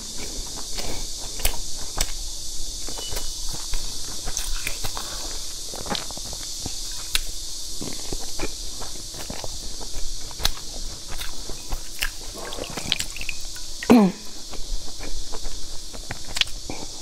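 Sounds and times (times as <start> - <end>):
steady hiss: 0.0 - 17.0
wet chewing and biting: 2.9 - 13.8, 14.4 - 16.9.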